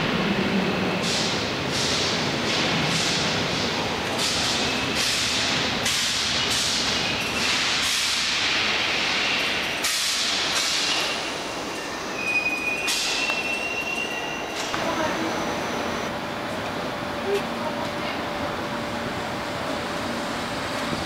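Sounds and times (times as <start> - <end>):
train wheels clattering: 1.0 - 15.1
high wheel squeal: 10.9 - 14.8.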